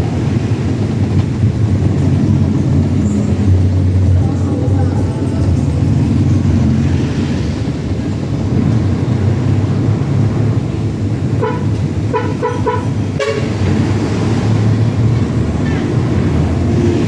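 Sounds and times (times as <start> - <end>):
truck engine running: 0.0 - 17.0
truck horn toots: 11.2 - 14.0.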